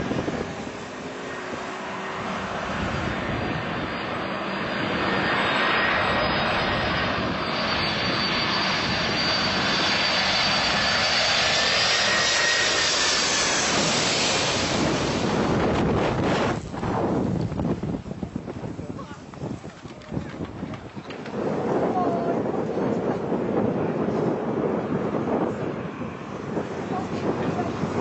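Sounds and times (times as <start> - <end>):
jet engines rushing and whining: 0.0 - 28.0.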